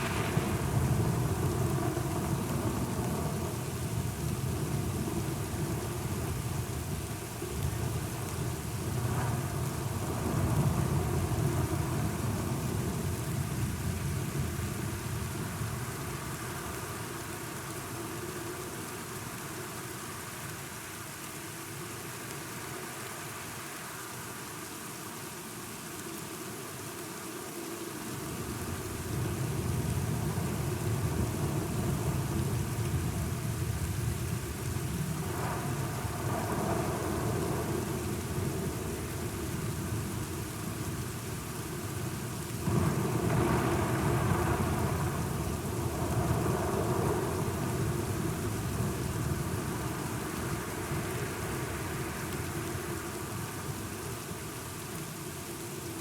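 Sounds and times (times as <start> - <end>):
low rolling thunder: 0.0 - 16.1, 28.2 - 54.1
steady rain: 0.0 - 56.0.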